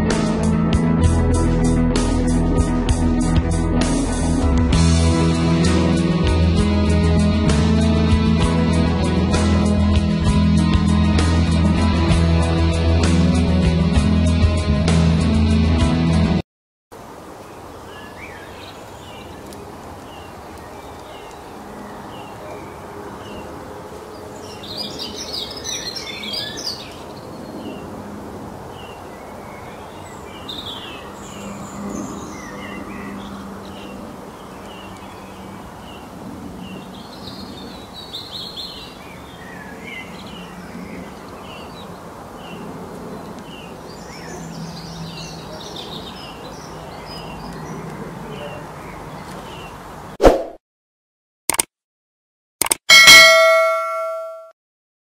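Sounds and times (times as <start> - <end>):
birds chirping and singing: 24.1 - 28.0, 28.8 - 49.8.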